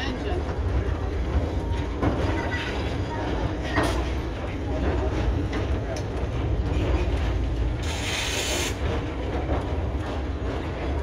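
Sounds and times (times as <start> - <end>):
train wheels rumbling: 0.0 - 11.0
light clicks on rails: 5.4 - 7.8
short hiss burst: 7.8 - 8.8.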